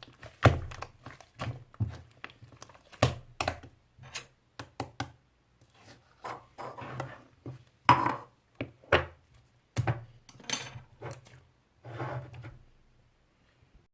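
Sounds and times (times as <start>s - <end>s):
slime squelching: 0.0s - 3.7s.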